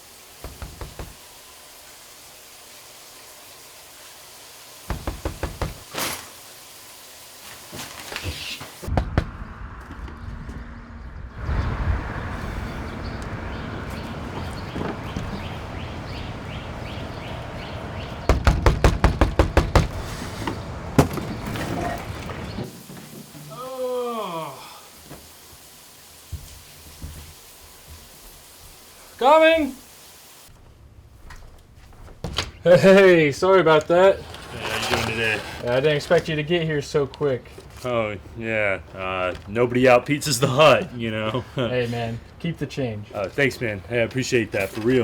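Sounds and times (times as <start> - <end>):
knuckles knocking on door: 0.4 - 1.2, 4.9 - 5.8, 18.3 - 19.9
rustling noise: 7.3 - 8.9, 19.8 - 23.4, 30.5 - 33.2, 33.9 - 36.6.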